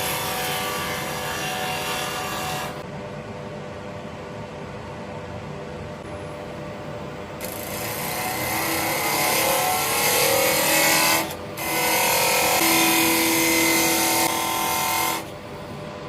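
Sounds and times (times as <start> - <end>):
wood lathe turning: 0.0 - 2.8, 7.4 - 15.3.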